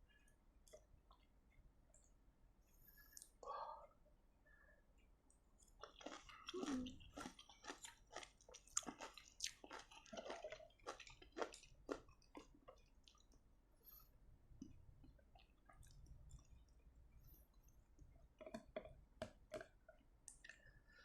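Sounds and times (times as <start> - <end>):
person chewing crunchy food: 5.6 - 13.4, 18.2 - 20.6.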